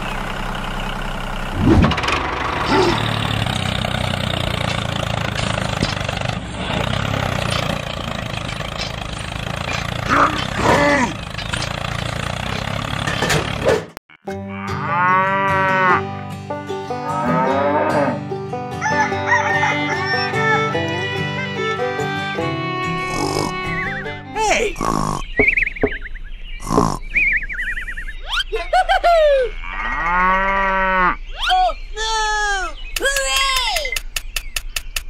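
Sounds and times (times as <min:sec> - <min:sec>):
tractor engine running: 0:00.0 - 0:14.0, 0:18.4 - 0:28.9
cow mooing: 0:14.3 - 0:16.2, 0:17.0 - 0:18.3, 0:23.0 - 0:23.7, 0:29.5 - 0:31.2.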